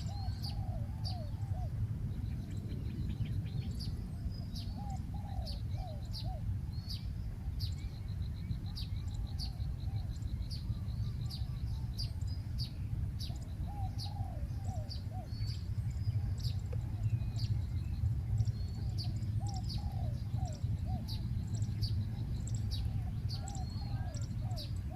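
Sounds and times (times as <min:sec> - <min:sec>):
dove cooing: 0:00.0 - 0:03.4, 0:04.0 - 0:06.6, 0:13.2 - 0:24.9
small birds chirping: 0:00.0 - 0:24.9
steady low rumble: 0:00.0 - 0:24.9.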